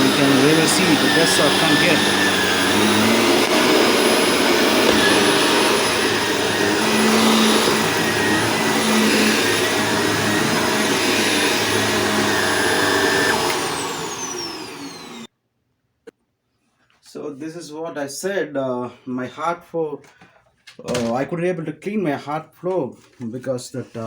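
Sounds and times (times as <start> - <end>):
vacuum cleaner running: 0.0 - 15.3.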